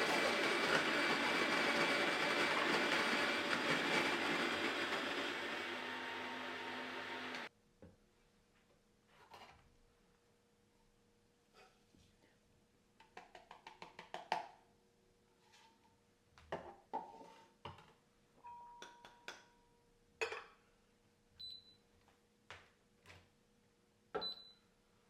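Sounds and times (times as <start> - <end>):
taps and clinks of household objects: 18.4 - 19.5.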